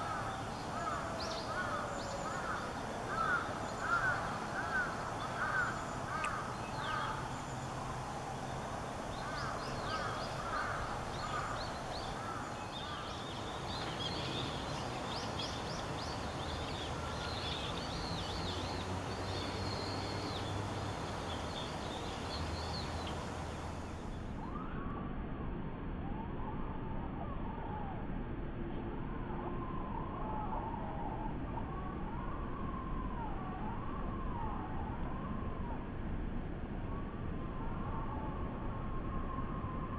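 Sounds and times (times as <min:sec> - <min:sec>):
birds chirping: 0:00.0 - 0:24.2
lower bird calls: 0:00.0 - 0:25.0
steady background hiss: 0:00.0 - 0:39.9.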